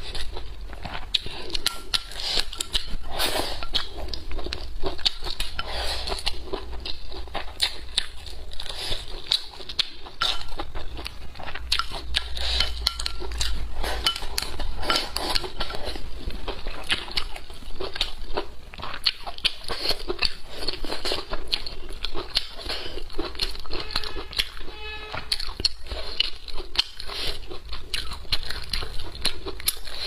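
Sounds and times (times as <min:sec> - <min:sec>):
close chewing and crunching: 0:00.0 - 0:30.0
chopsticks clinking on bowl: 0:11.8 - 0:15.8.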